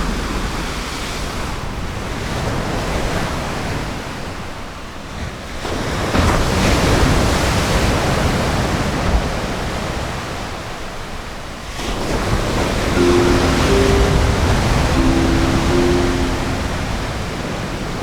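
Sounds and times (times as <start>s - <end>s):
ocean surf washing onto beach: 13.0s - 17.0s.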